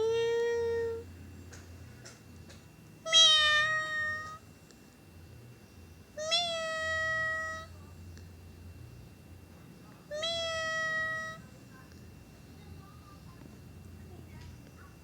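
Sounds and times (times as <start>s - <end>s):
cat meowing: 0.0s - 1.0s, 3.1s - 4.4s, 6.2s - 7.7s, 10.1s - 11.4s.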